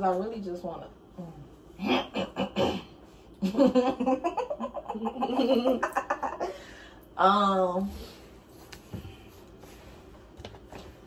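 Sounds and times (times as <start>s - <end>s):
woman laughing hard: 3.4s - 6.7s.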